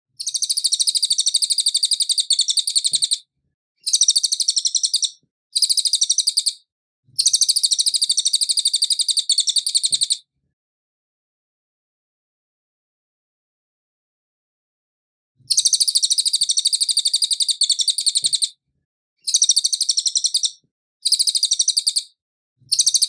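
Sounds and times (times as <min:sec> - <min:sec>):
songbird chirping rapidly: 0:00.2 - 0:03.2, 0:03.8 - 0:06.6, 0:07.2 - 0:10.2, 0:15.5 - 0:18.5, 0:19.2 - 0:23.0.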